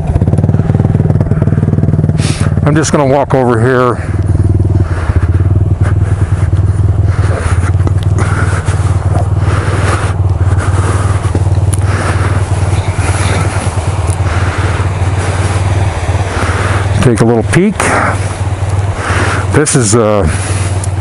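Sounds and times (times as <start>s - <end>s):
wind buffeting microphone: 3.7s - 21.0s
footsteps crunching in snow: 4.9s - 16.9s.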